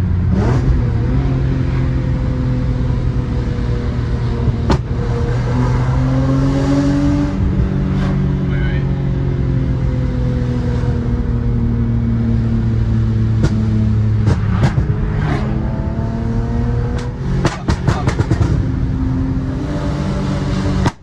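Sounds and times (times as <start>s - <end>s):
car engine running: 0.0s - 21.0s
exhaust cracks: 3.0s - 5.9s, 10.5s - 16.2s, 16.8s - 21.0s.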